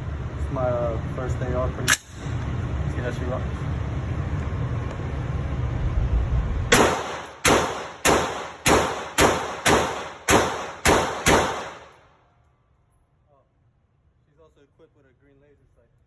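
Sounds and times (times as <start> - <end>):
rifle shots: 6.7 - 12.1.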